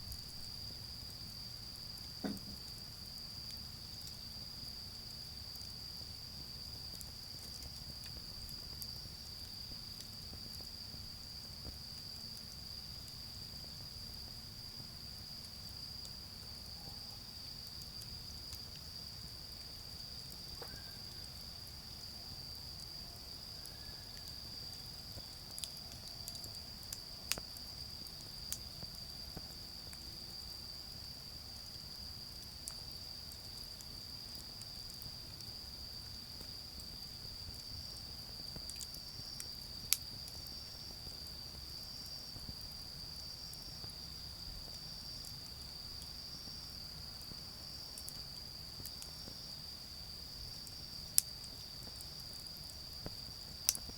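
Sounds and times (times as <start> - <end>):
charcoal fire popping: 0.0 - 16.3, 22.8 - 30.3, 50.5 - 53.9
insects trilling: 0.0 - 53.9.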